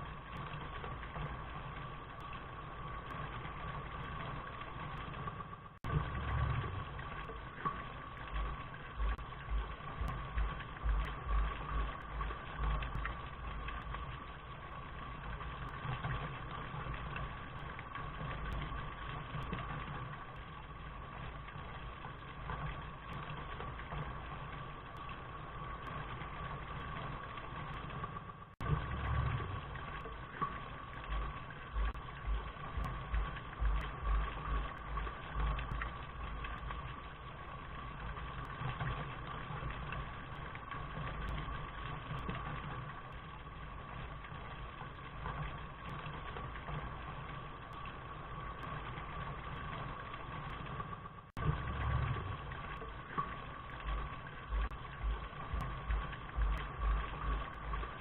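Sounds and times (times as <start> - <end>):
steady rain: 0.0 - 58.0
low rumbling: 4.6 - 16.2, 27.8 - 38.4, 51.4 - 58.0.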